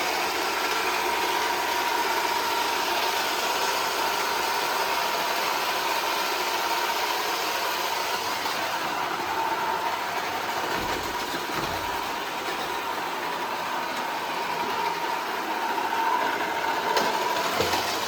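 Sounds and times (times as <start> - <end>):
robot vacuum whirring: 8.0 - 18.0.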